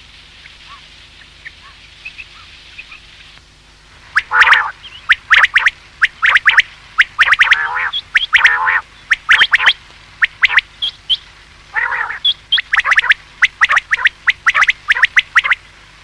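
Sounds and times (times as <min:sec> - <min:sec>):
low harsh bird call: 0:04.2 - 0:15.6
quail calling high notes: 0:04.2 - 0:15.6.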